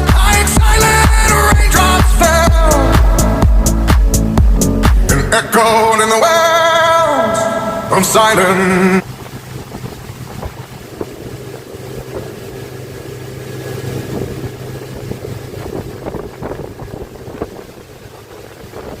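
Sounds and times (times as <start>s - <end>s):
engine humming: 0.0s - 19.0s
wind on microphone: 9.0s - 19.0s.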